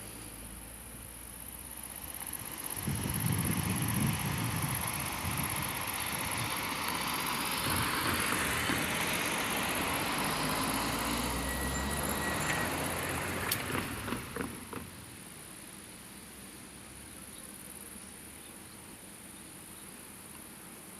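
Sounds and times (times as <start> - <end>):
vehicle driving past: 2.0 - 15.0.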